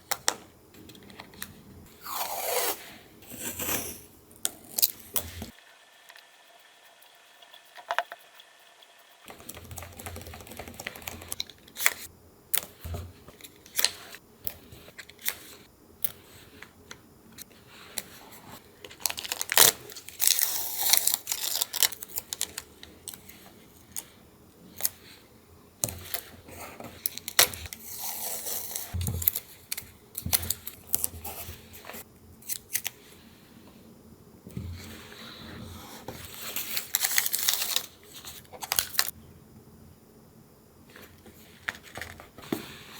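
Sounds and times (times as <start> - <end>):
paper rustling and crinkling: 36.2 - 39.1.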